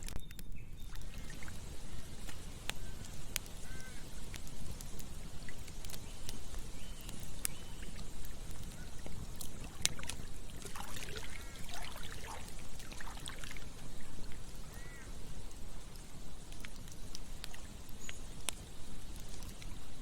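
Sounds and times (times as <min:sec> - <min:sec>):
campfire crackling and popping: 0:00.0 - 0:20.0
flowing river water: 0:00.9 - 0:20.0
short bird calls: 0:02.8 - 0:04.2, 0:11.0 - 0:12.5, 0:14.0 - 0:15.2.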